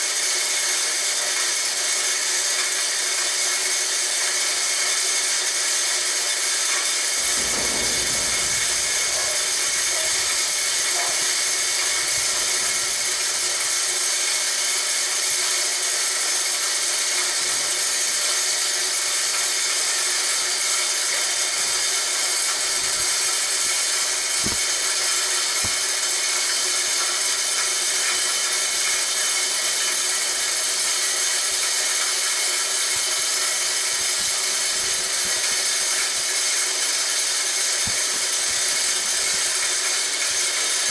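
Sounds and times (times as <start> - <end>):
short low knocks: 7.2 - 13.1.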